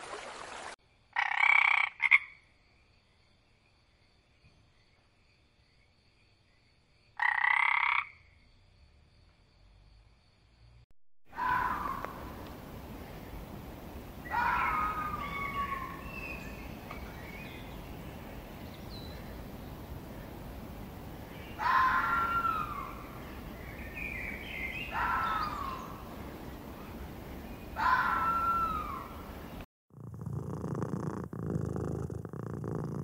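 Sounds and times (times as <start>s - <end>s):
low background noise: 11.7s - 29.6s.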